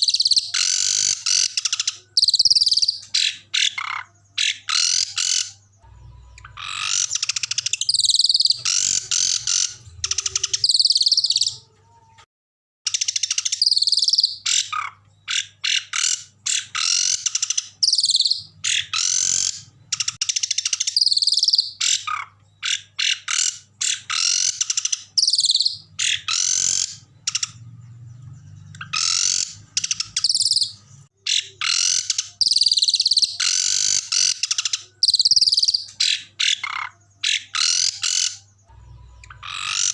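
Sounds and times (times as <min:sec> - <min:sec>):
songbirds chattering and trilling: 0:00.0 - 0:12.3, 0:12.9 - 0:39.9.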